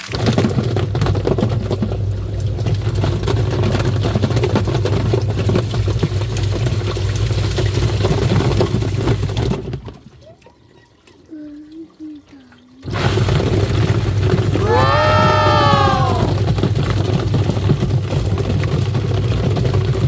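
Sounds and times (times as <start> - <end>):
knocks and water splashes: 0.0 - 20.0
washing machine motor hum: 10.4 - 20.0.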